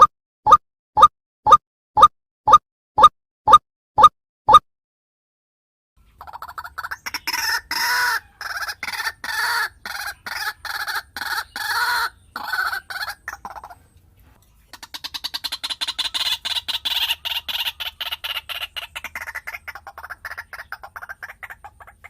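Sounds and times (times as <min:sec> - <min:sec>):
fowl clucking and squawking: 0:06.2 - 0:13.9, 0:14.7 - 0:22.0.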